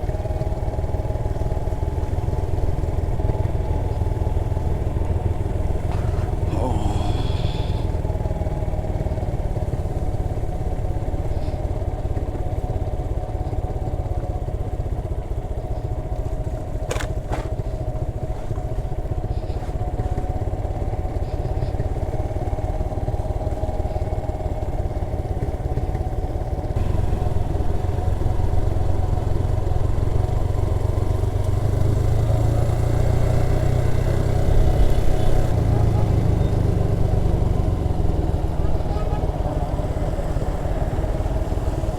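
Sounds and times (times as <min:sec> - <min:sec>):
motorcycle engine engine braking: 0:05.4 - 0:08.0.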